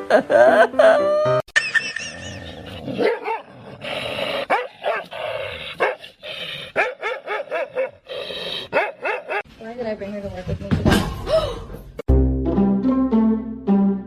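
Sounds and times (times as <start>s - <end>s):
dog barking: 3.0s - 3.5s, 4.5s - 5.1s, 5.8s - 6.0s, 6.8s - 8.0s, 8.7s - 9.5s.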